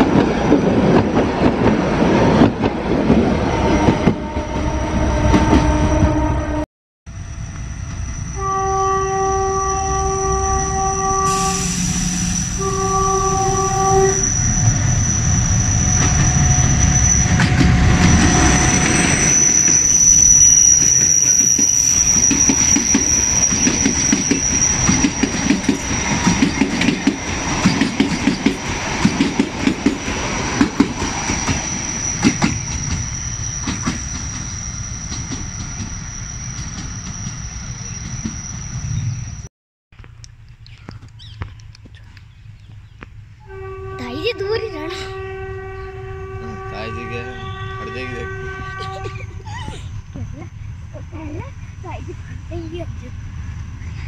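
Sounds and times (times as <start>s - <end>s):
train rumbling past: 0.0s - 39.5s, 41.2s - 54.0s
train horn blasts: 3.6s - 6.7s, 8.3s - 14.4s, 43.4s - 49.4s.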